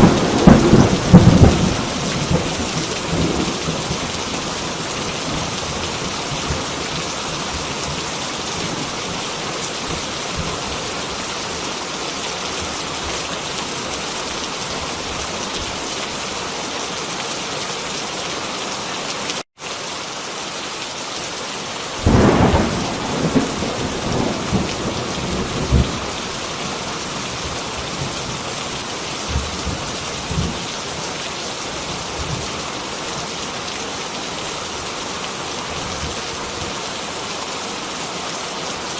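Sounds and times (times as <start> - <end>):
thunder rumbling and cracking: 0.0 - 9.2, 22.0 - 28.6
heavy rain: 0.0 - 38.9.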